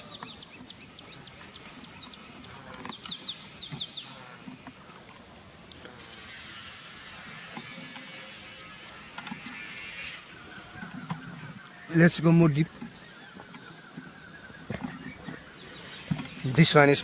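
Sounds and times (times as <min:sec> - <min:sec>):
small birds chirping: 0:00.0 - 0:17.0
high-pitched insect drone: 0:01.7 - 0:12.7.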